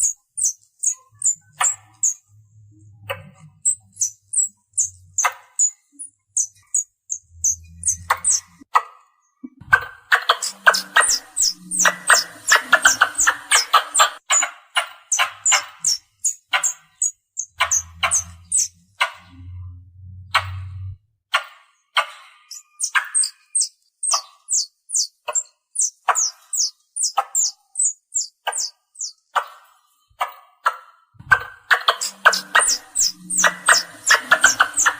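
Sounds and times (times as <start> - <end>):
squirrel chirping: 0.0 - 2.3, 2.9 - 8.7, 9.7 - 19.3, 22.0 - 29.6, 31.3 - 34.9
low hum: 17.6 - 21.0.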